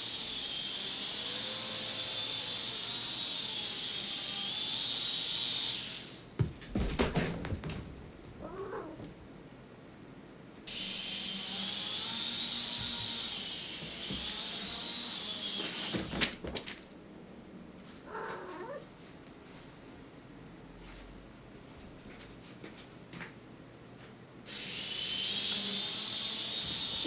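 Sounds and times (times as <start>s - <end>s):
toy helicopter motor whine: 0.0s - 6.3s, 10.7s - 16.3s, 24.5s - 27.0s.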